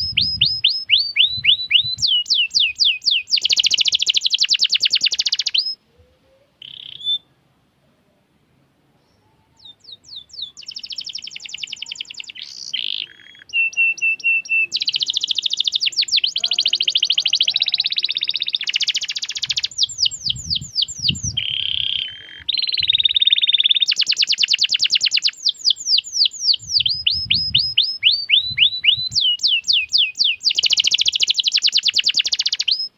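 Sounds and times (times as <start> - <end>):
canary singing trills: 0.0 - 7.3, 9.1 - 32.9.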